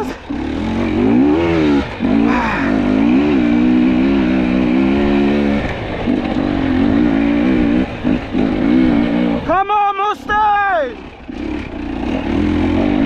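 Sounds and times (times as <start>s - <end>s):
dirt bike engine revving: 0.0s - 9.6s, 10.3s - 13.0s.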